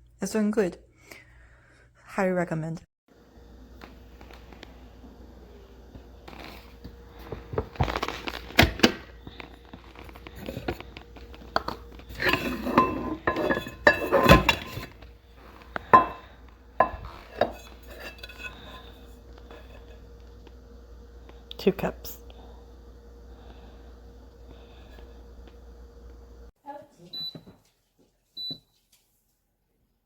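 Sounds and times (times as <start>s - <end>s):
kitchenware clinking and clattering: 9.9s - 19.9s
sharp ceramic clinks: 16.0s - 16.2s.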